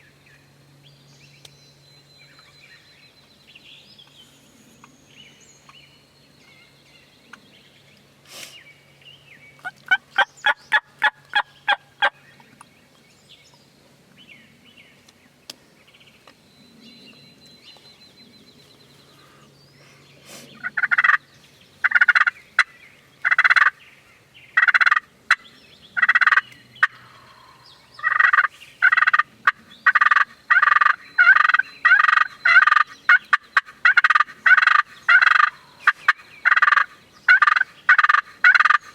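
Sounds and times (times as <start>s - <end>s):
wild turkey yelping: 9.6s - 12.2s, 20.6s - 21.2s, 21.8s - 23.8s, 24.6s - 25.4s, 26.0s - 38.9s.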